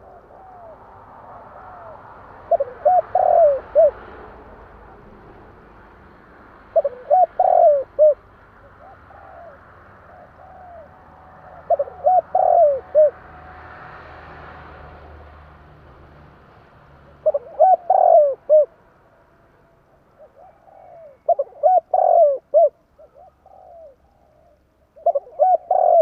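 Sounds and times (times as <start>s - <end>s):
dove cooing song: 0.0s - 4.2s, 6.6s - 13.3s, 17.1s - 18.8s, 20.1s - 26.0s.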